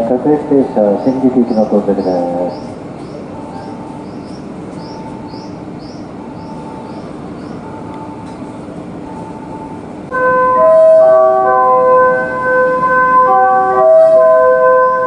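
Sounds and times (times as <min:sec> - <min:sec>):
train rumbling into platform: 0:00.0 - 0:15.0
station platform melody: 0:10.1 - 0:15.0.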